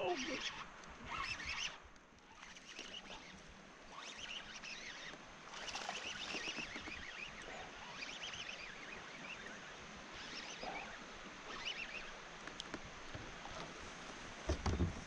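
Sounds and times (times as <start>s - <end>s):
birds chirping: 2.3s - 12.2s.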